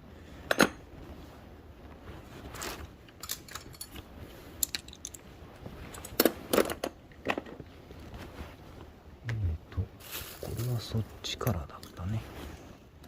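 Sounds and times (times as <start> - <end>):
metal parts and tools clinking: 2.5 - 7.6.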